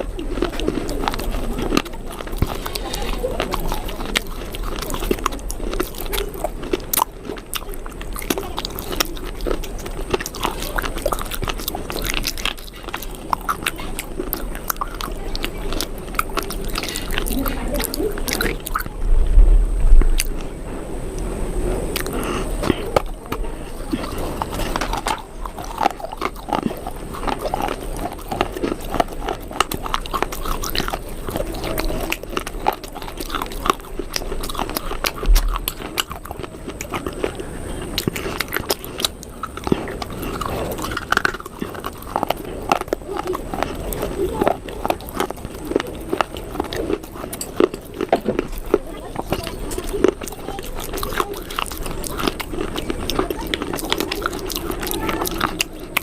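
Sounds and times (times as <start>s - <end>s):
crunchy chewing and biting: 0.0s - 56.0s
low thump: 19.0s - 20.2s.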